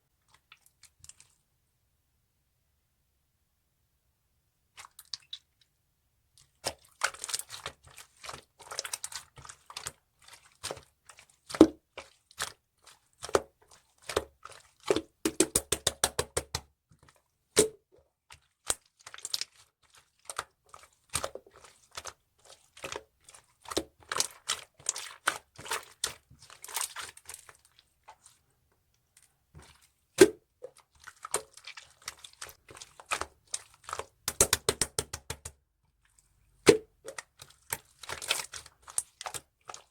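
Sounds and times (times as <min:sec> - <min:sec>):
slime clicking and popping: 0:15.2 - 0:16.6, 0:33.9 - 0:35.5.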